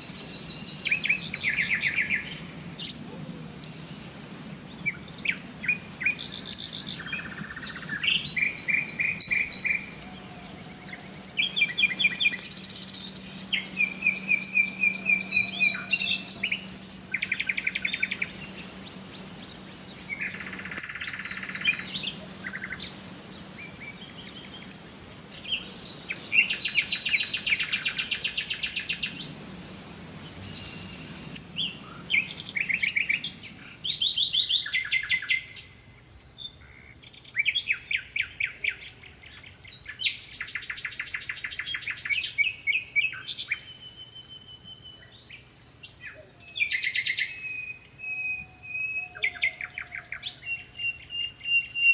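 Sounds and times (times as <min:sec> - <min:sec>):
birds chirping and trilling: 0:00.0 - 0:51.9.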